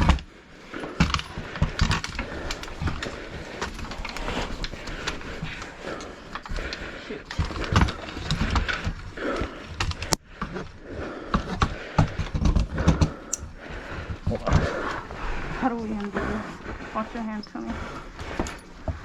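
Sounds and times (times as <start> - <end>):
catch poles clattering and scraping: 1.0 - 9.6.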